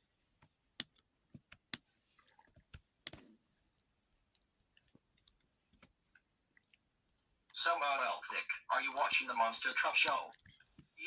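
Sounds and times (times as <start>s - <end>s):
faint clicks and ticks: 0.4s - 6.9s.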